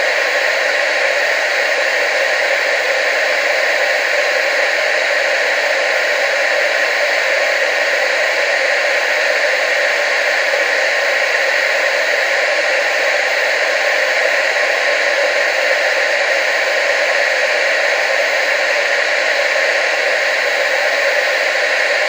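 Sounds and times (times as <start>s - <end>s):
tv static hiss: 0.0s - 22.0s.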